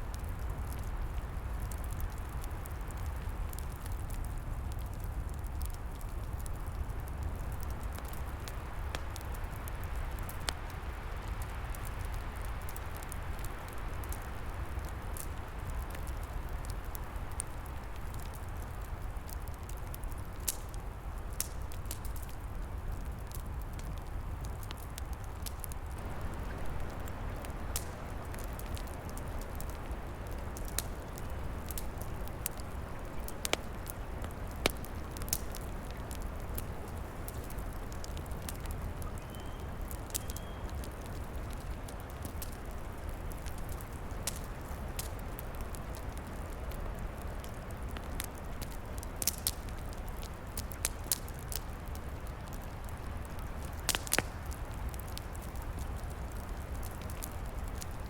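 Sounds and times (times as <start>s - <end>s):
wood fire crackling: 0.0s - 58.0s
low wind rumble: 22.4s - 49.0s
fire pops: 23.2s - 58.0s.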